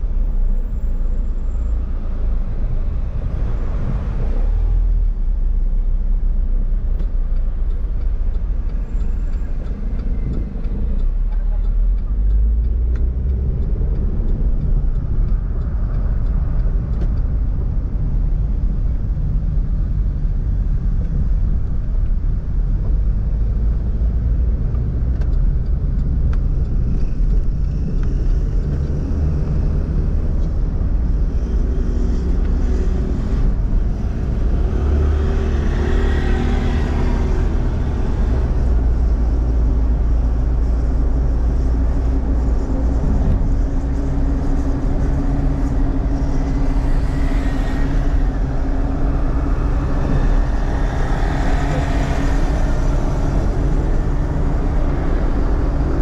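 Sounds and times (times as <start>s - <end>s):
car engine rumble: 0.0s - 56.0s
road noise: 0.0s - 56.0s.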